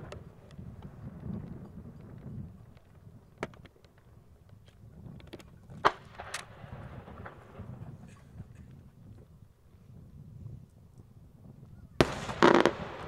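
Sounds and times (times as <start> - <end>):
distant firework bangs: 12.0 - 13.0
firework crackle: 12.0 - 13.0.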